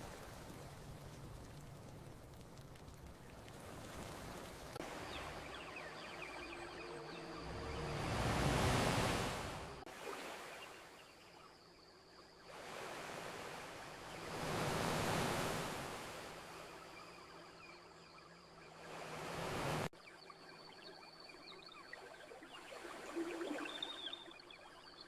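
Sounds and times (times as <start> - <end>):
ocean waves washing onto beach: 0.0 - 11.3, 12.5 - 17.4, 18.7 - 19.9.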